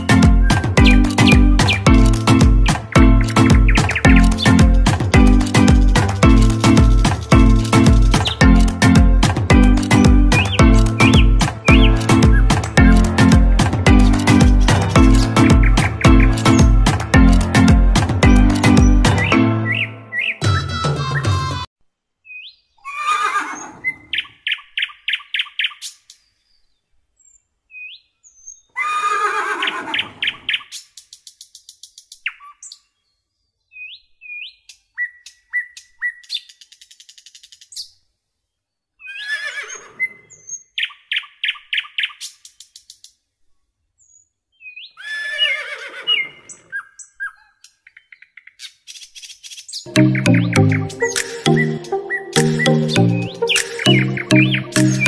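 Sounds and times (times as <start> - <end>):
birds chirping and trilling: 0.0 - 38.1, 38.9 - 43.2, 44.0 - 55.0
horses whinnying: 22.8 - 24.1, 28.8 - 30.3, 39.1 - 40.4, 45.0 - 46.8.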